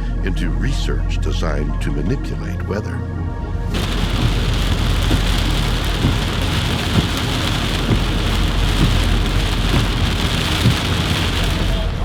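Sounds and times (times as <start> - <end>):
rain pouring: 3.7 - 12.0.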